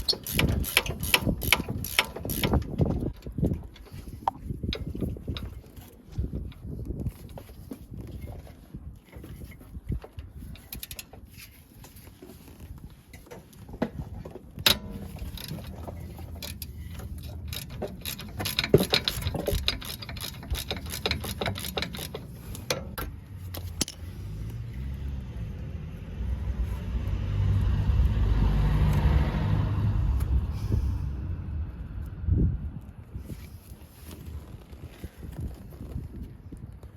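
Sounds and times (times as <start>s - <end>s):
metallic clicks of hand tools: 0.0s - 5.5s, 14.6s - 24.6s
vehicle engine rumble: 0.0s - 36.9s.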